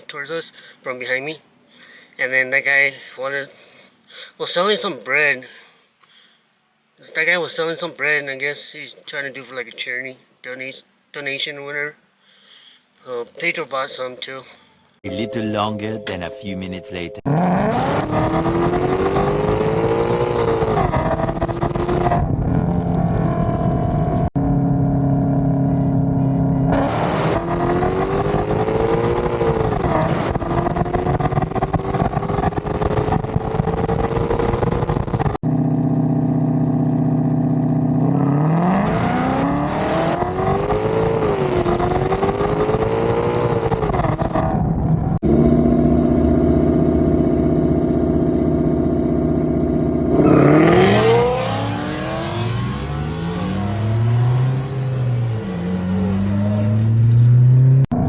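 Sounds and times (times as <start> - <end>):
car engine accelerating hard: 17.2 - 44.6, 45.2 - 58.0.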